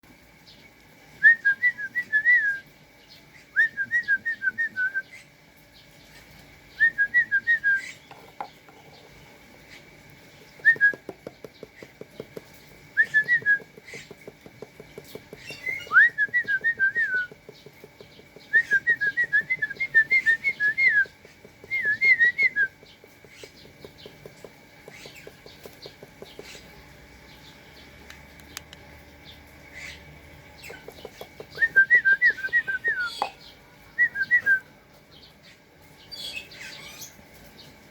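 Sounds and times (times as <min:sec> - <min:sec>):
whistled chirping notes: 0:06.7 - 0:08.0, 0:10.6 - 0:11.0, 0:12.9 - 0:13.7, 0:15.4 - 0:17.4, 0:18.4 - 0:22.8, 0:31.5 - 0:33.4.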